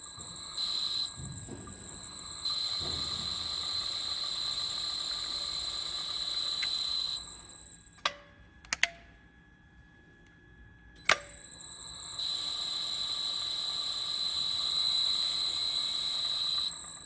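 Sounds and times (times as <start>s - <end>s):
electric motor whine: 0.0s - 7.9s, 11.1s - 17.0s
sharp metallic clicks: 0.1s - 9.1s, 11.0s - 17.0s
hiss: 0.2s - 7.5s.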